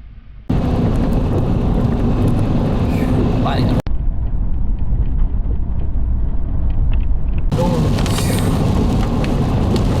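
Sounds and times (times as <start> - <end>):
storm wind buffeting microphone: 0.5 - 10.0
rain and hail striking: 7.5 - 10.0.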